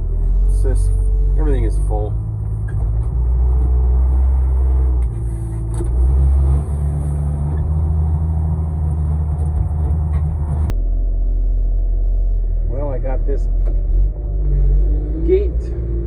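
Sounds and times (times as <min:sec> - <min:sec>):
wheel loader engine under load: 0:00.0 - 0:10.7.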